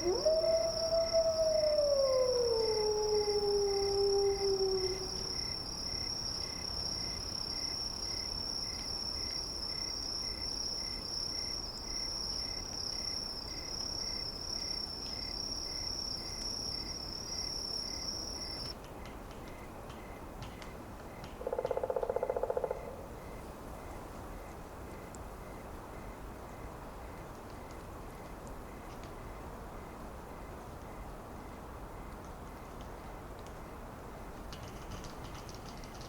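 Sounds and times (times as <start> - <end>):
long falling howl: 0.0 - 5.6.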